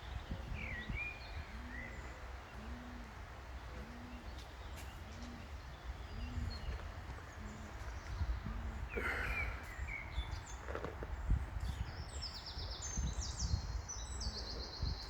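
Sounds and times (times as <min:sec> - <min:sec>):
wind rumble on microphone: 0:00.0 - 0:02.5, 0:03.1 - 0:15.0
small birds chirping: 0:00.0 - 0:15.0
pigeon cooing: 0:01.5 - 0:04.3.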